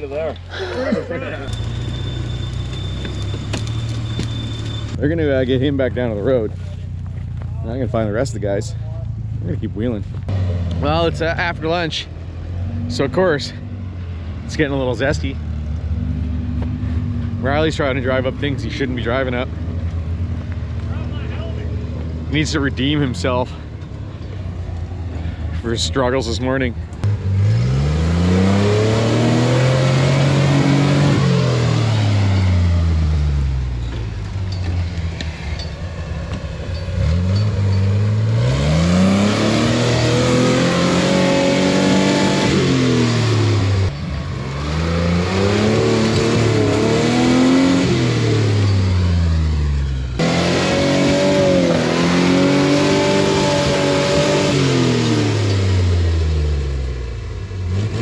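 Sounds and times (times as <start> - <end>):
truck engine revving: 0.0 - 6.5, 7.3 - 23.7, 24.8 - 58.0.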